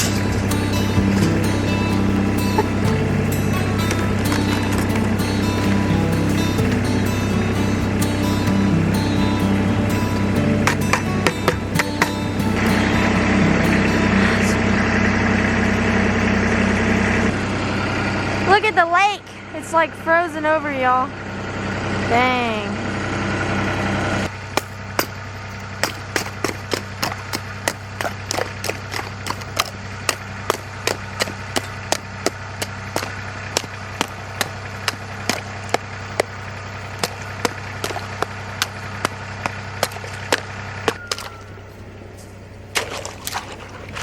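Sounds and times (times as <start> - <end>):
farm vehicle engine idling: 0.0 - 44.0
sharp crunches: 24.5 - 41.6, 42.2 - 44.0.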